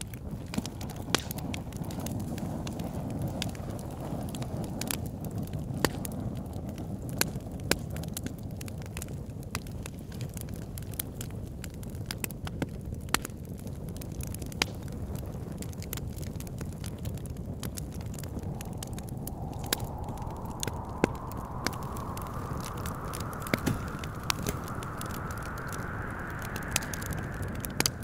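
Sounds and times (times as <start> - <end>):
wood fire crackling: 13.2 - 28.0
low rumble of wind: 15.6 - 28.0.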